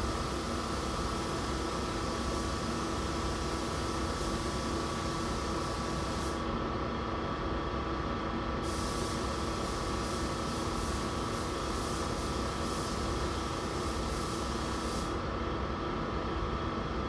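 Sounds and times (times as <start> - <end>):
spray gun air hiss: 5.6 - 6.4, 8.6 - 15.2.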